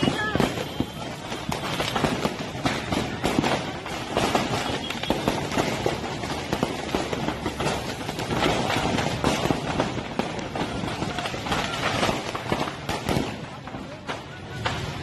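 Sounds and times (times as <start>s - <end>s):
firecrackers cracking and popping: 0.0s - 15.0s.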